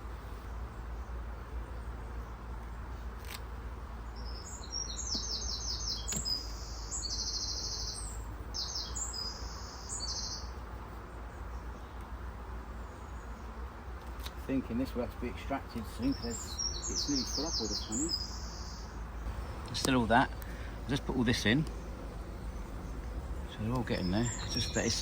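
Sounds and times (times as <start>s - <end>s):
songbird trilling: 4.2s - 10.6s, 15.6s - 25.0s
low background rumble: 14.7s - 25.0s.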